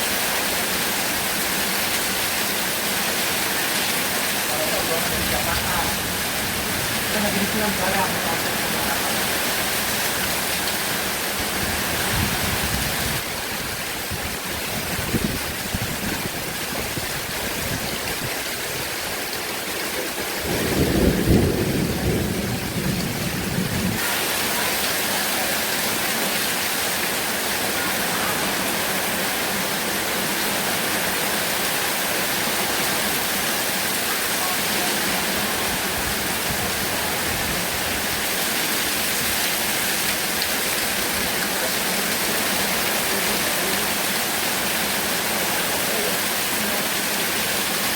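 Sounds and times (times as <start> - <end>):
heavy rain pouring: 0.0 - 47.9
thunder rumbling: 20.2 - 24.2.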